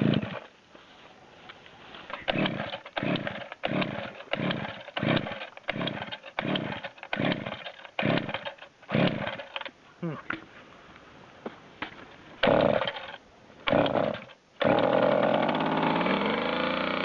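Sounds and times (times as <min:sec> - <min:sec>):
chainsaw starter cord yanks: 0:00.0 - 0:00.5, 0:02.1 - 0:09.7, 0:12.4 - 0:17.0
engine rasping turn-over: 0:12.4 - 0:17.0.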